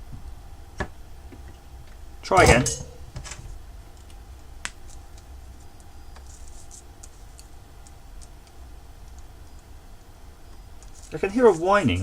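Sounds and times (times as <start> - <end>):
faint low hum: 0.0 - 12.0
small clicks and ticks: 3.9 - 11.2.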